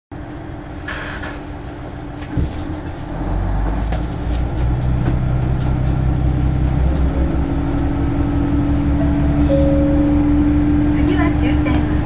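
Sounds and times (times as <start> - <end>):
railway engine running: 0.2 - 12.0.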